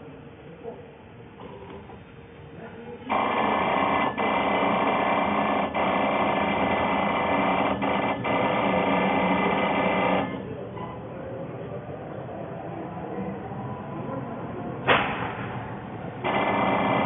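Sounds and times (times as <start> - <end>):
machine whirring: 3.1 - 10.7, 14.8 - 17.0.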